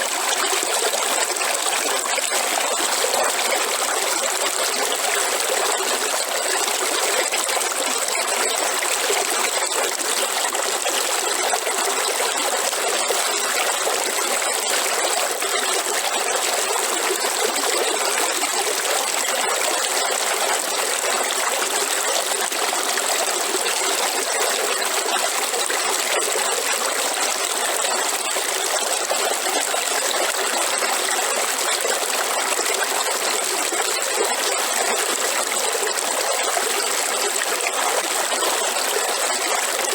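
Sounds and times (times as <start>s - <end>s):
waterfall pouring and splashing: 0.0s - 39.9s.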